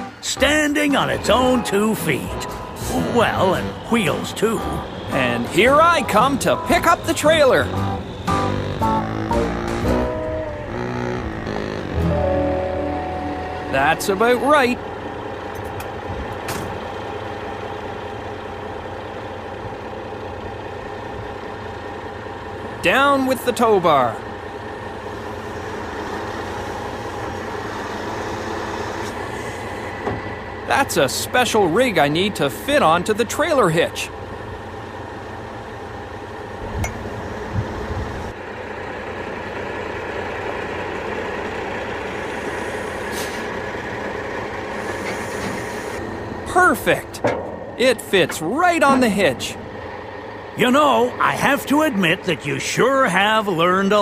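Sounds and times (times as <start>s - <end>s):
truck engine idling: 0.0s - 54.0s
knocks and thumps of towing rig: 47.1s - 48.5s.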